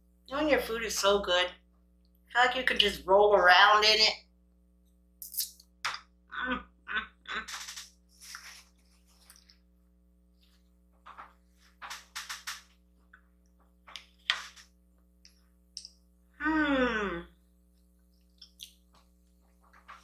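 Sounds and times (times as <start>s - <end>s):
person humming mm: 16.4s - 17.4s.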